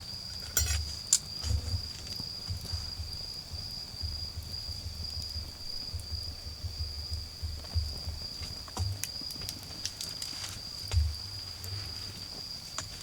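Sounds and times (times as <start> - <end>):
wood fire popping: 0.0 - 13.0
low uneven rumble: 0.6 - 9.9.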